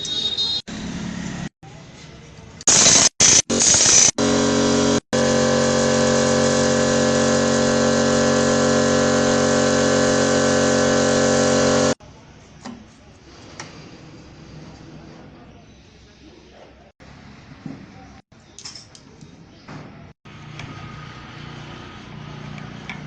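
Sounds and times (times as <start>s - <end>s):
machine humming: 2.7s - 12.0s.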